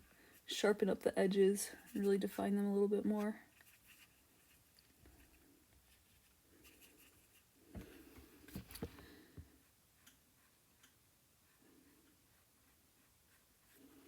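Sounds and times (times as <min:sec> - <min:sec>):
paintbrush scratching: 0:03.5 - 0:07.5.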